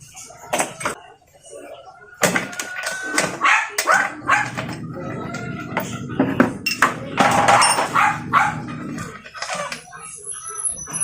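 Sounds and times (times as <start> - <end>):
dog barking: 3.4 - 4.7, 7.8 - 8.9.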